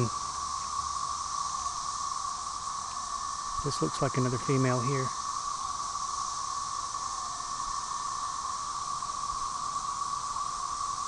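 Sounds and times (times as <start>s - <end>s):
cicadas droning: 0.0s - 11.0s.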